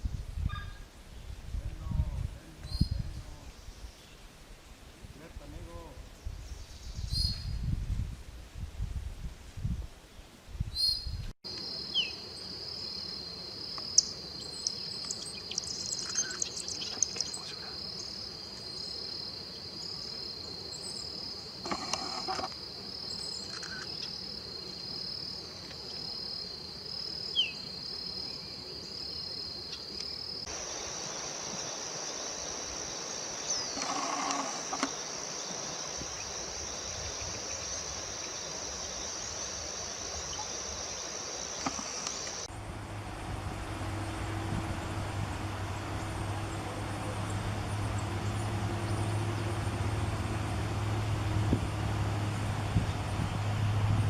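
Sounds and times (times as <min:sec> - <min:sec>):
high-pitched insect drone: 0:29.0 - 0:42.5.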